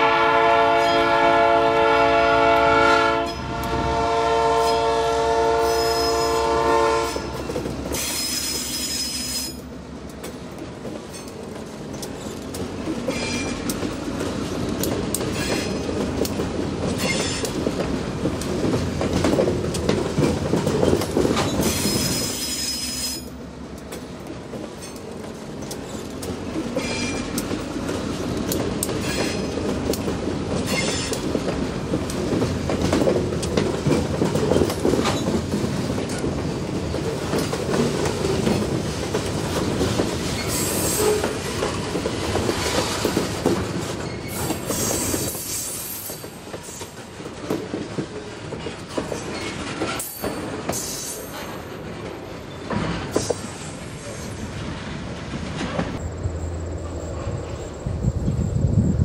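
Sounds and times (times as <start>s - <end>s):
freight train wheels rumbling on rails: 0.0s - 59.0s
high wheel squeal: 5.6s - 6.4s, 8.0s - 9.6s, 21.6s - 23.3s, 40.4s - 41.4s.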